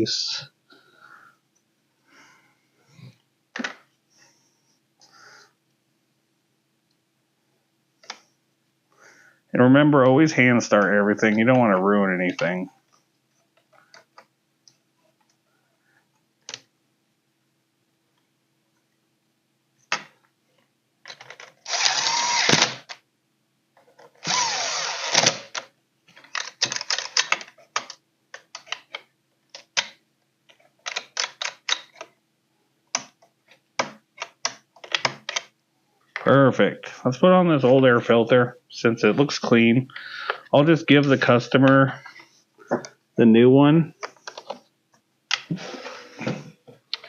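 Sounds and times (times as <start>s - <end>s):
power driver driving screws: 21.6s - 22.8s, 24.2s - 25.5s.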